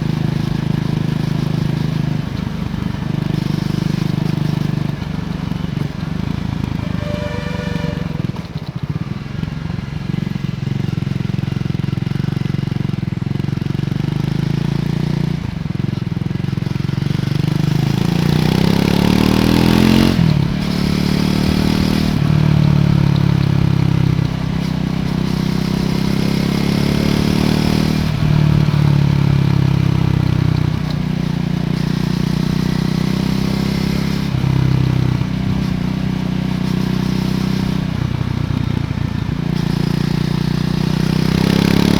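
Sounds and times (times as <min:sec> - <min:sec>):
motorcycle engine revving: 0:11.9 - 0:41.9.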